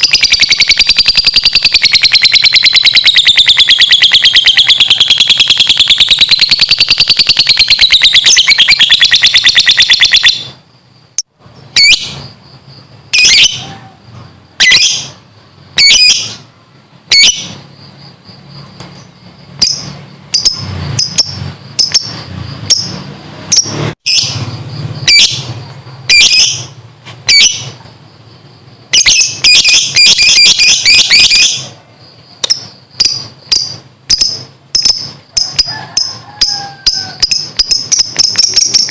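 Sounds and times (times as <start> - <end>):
lovebird chattering trill: 0.0 - 10.6, 14.6 - 15.2, 19.6 - 27.8, 28.9 - 31.8, 32.4 - 38.9
sharp bird chirps: 0.0 - 13.8, 14.5 - 16.5, 17.1 - 38.9.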